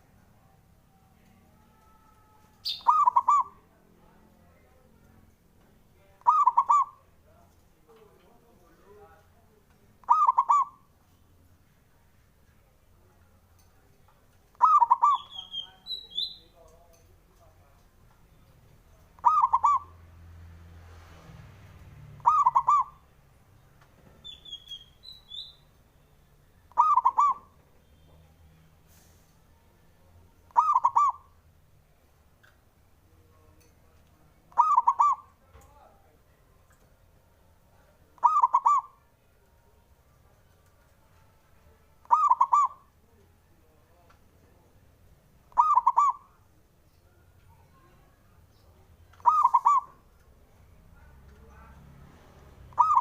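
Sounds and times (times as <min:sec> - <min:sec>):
dove cooing: 0:01.8 - 0:03.6, 0:06.2 - 0:07.0, 0:10.0 - 0:10.8, 0:14.6 - 0:15.2, 0:19.2 - 0:19.9, 0:22.2 - 0:23.0, 0:26.7 - 0:27.5, 0:30.5 - 0:31.3, 0:34.5 - 0:35.3, 0:38.2 - 0:39.0, 0:42.0 - 0:42.9, 0:45.5 - 0:46.3, 0:49.2 - 0:50.0, 0:52.7 - 0:53.0
small bird chirping: 0:02.6 - 0:03.6, 0:14.6 - 0:16.6, 0:22.2 - 0:23.0, 0:24.2 - 0:25.8, 0:26.7 - 0:28.1, 0:30.5 - 0:31.3, 0:34.6 - 0:35.3, 0:48.4 - 0:50.0, 0:52.7 - 0:53.0.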